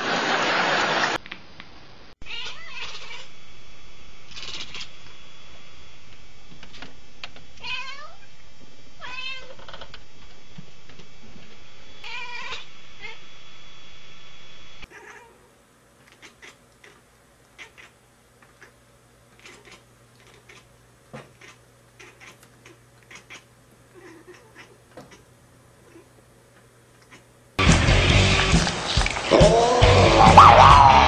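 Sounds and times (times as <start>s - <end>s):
cat chirping and chattering: 2.2s - 3.3s, 16.0s - 18.8s, 19.4s - 26.2s, 27.0s - 27.3s
cat meowing: 2.2s - 3.3s, 7.6s - 8.3s, 9.0s - 9.6s, 12.0s - 13.2s, 14.9s - 15.4s, 21.4s - 25.2s.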